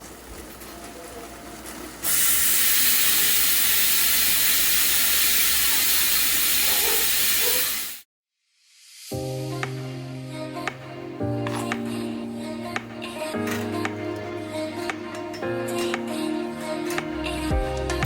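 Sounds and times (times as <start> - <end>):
loud steady hiss: 2.0 - 10.3.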